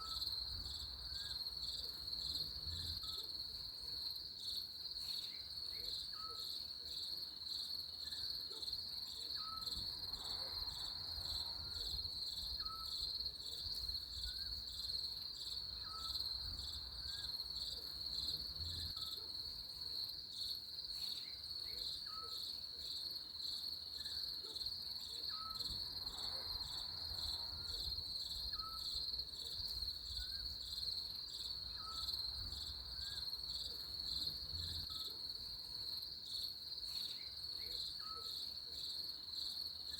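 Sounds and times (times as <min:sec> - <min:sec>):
crickets trilling: 0:09.3 - 0:19.6, 0:25.0 - 0:39.9.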